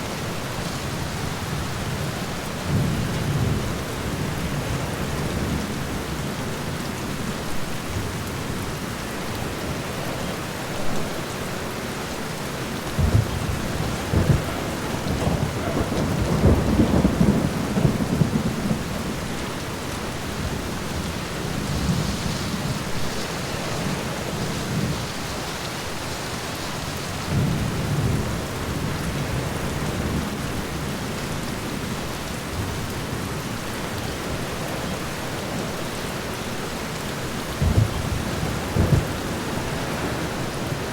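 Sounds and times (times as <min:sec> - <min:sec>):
rain on a window: 0:00.0 - 0:40.9
rolling thunder: 0:12.6 - 0:25.4, 0:37.6 - 0:40.9.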